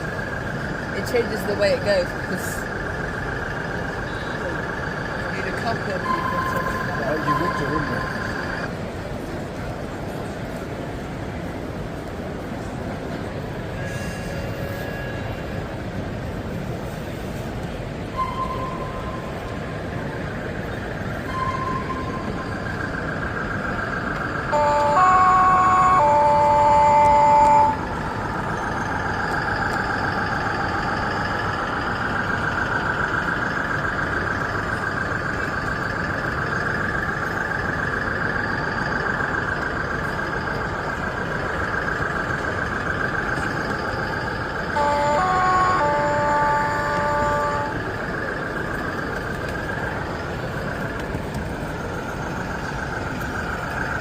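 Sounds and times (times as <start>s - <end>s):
two-tone train horn: 13.6s - 16.1s, 18.1s - 19.6s, 21.2s - 22.8s, 24.4s - 30.9s, 43.7s - 48.5s.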